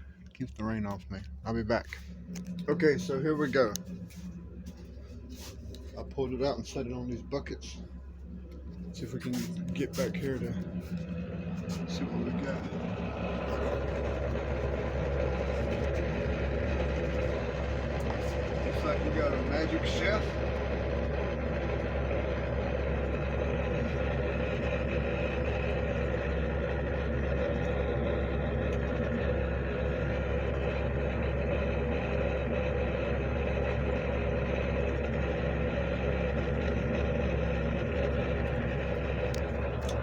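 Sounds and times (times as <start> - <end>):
motor humming with steady tones: 0.0 - 40.0.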